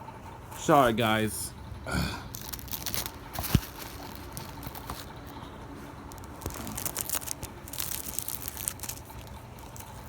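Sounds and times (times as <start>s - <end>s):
plastic wrap crinkling: 2.3s - 5.4s, 6.1s - 10.0s.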